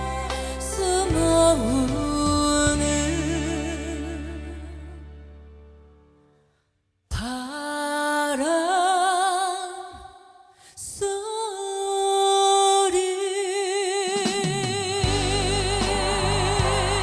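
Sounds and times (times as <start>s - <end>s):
voice singing wordless notes: 12.9s - 17.0s.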